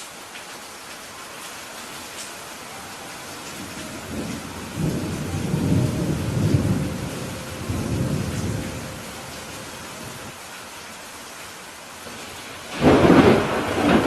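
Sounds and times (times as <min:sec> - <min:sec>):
rain hiss: 0:00.0 - 0:14.0
rolling thunder rumble: 0:03.6 - 0:10.3, 0:12.7 - 0:14.0.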